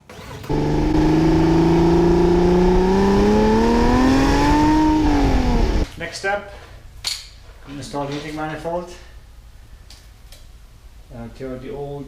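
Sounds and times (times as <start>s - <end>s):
car engine accelerating: 0.4s - 5.9s.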